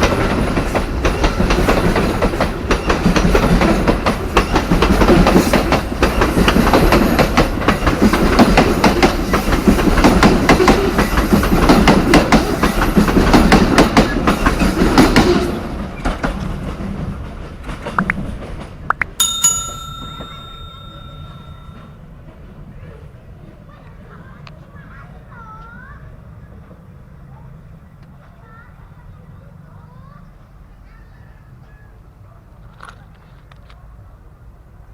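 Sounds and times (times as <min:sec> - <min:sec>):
train wagons clattering over rail joints: 0:00.0 - 0:18.8
steady high ringing tone: 0:19.2 - 0:21.9.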